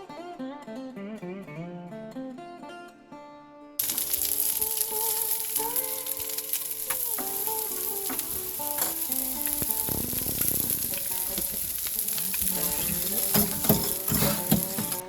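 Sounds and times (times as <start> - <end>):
fish fillets sizzling in a pan: 3.8 - 15.0.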